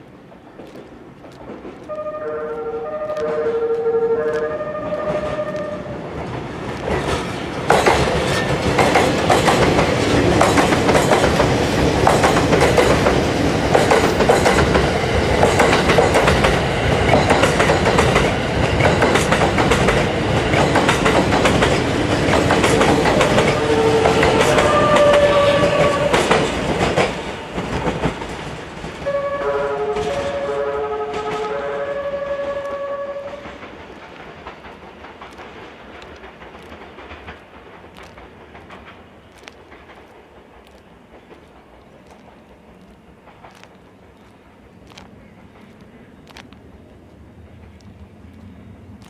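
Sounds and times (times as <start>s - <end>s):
wheels clacking on rail joints: 0.1s - 49.0s
melodic train horn: 1.9s - 6.0s, 23.4s - 26.3s, 29.0s - 33.6s.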